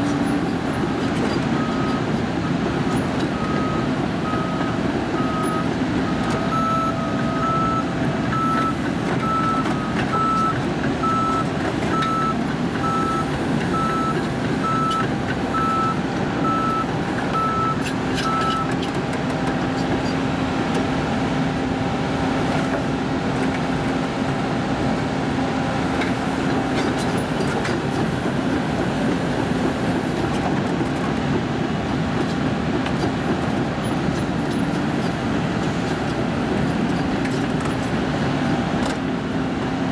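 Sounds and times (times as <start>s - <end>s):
diesel engine running: 0.0s - 39.9s
reversing alarm beeping: 3.4s - 18.7s.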